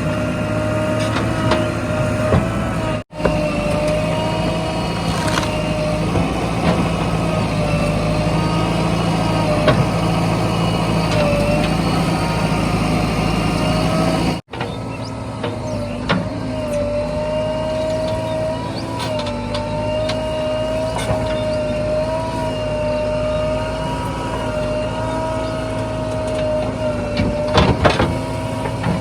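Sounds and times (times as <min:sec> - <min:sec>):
diesel engines running: 0:00.0 - 0:29.0
wavering whine: 0:07.3 - 0:29.0.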